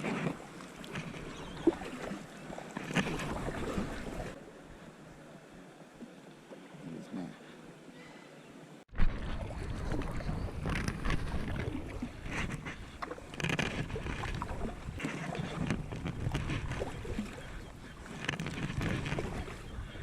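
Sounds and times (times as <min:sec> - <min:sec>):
paddle splashing: 0:00.0 - 0:08.3, 0:08.9 - 0:20.0
low camera handling rumble: 0:10.0 - 0:16.9, 0:18.1 - 0:19.4
lifejacket rubbing on camera: 0:12.2 - 0:17.1, 0:18.0 - 0:19.7.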